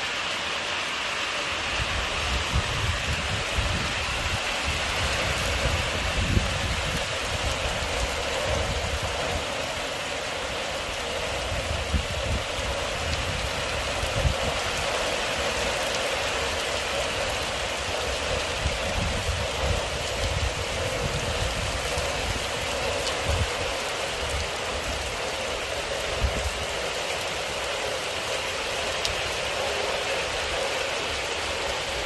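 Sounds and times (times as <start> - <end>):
rain falling on mud and puddles: 0.0 - 32.0.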